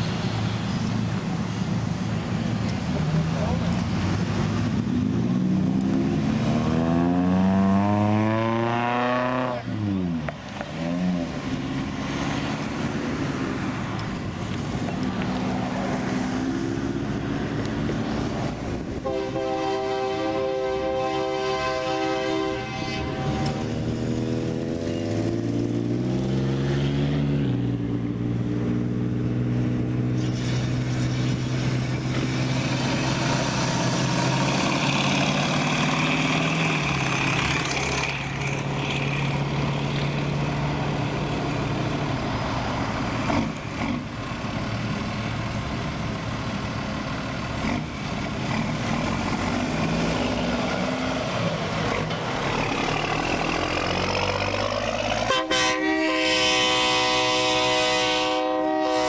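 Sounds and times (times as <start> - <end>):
cars driving slowly past: 0.0 - 19.1, 22.4 - 55.5.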